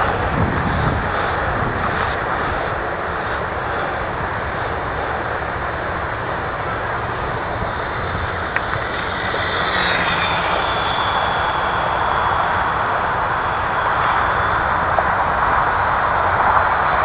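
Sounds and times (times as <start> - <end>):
model plane propeller whining: 0.0 - 17.0.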